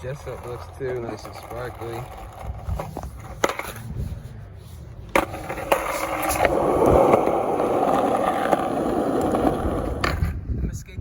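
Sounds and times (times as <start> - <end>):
skateboard wheels rolling: 0.0 - 10.4
skateboard clacks: 5.1 - 10.4.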